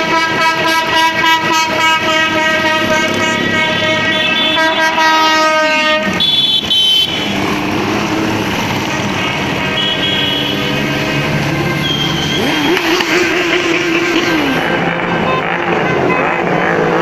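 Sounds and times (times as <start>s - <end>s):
vehicle horns: 0.0s - 7.9s, 8.7s - 17.0s
motorcycle engines revving: 0.0s - 17.0s.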